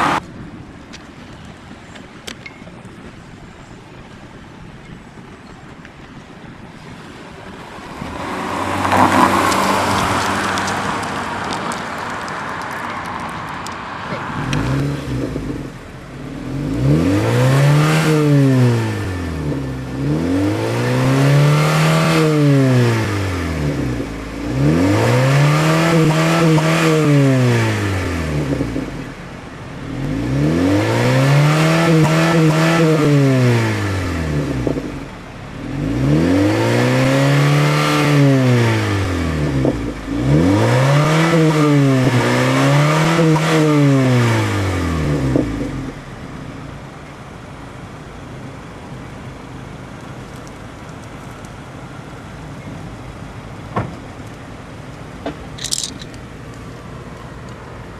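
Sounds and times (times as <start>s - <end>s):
car engine revving: 0.0s - 0.2s, 7.4s - 47.0s.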